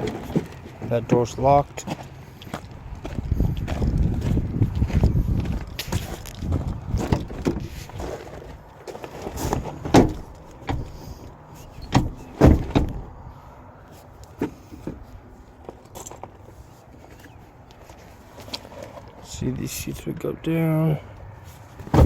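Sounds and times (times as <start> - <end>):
truck door knocking open: 9.5 - 11.0, 11.8 - 13.1, 21.8 - 22.0.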